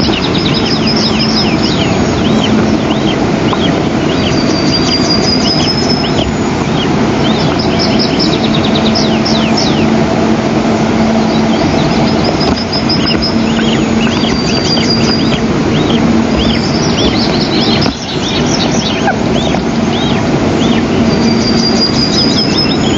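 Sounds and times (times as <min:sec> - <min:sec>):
eagle chicks begging calls: 0:00.0 - 0:22.9
loud steady rushing noise: 0:00.0 - 0:22.9
low hum: 0:00.0 - 0:22.9.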